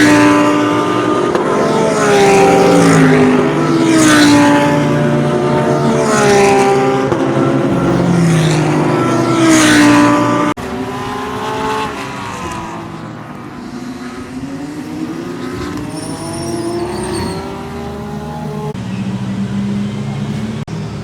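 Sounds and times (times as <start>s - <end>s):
distant engine noise: 0.0s - 21.0s
race cars passing at speed: 0.0s - 21.0s.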